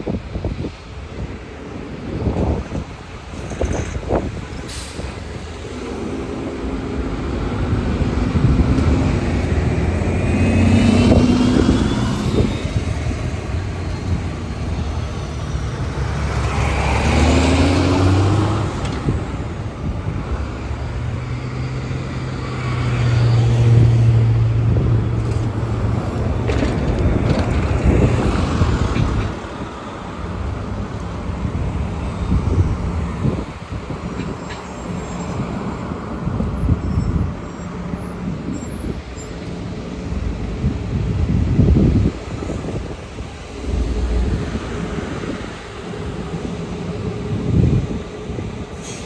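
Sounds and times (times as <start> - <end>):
diesel bus engines: 0.0 - 49.0
road traffic: 0.0 - 49.0
air brake hiss: 4.6 - 5.5, 48.7 - 49.0.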